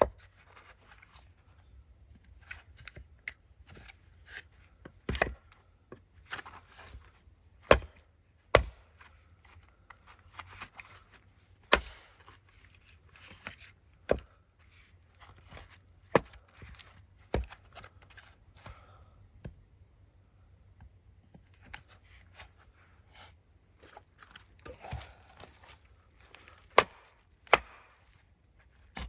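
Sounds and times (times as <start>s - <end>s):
axe chopping into wood: 5.0s - 5.4s, 7.6s - 9.0s, 11.7s - 12.2s, 14.0s - 14.4s, 16.1s - 16.7s, 17.3s - 17.6s, 24.6s - 25.8s, 26.7s - 28.0s.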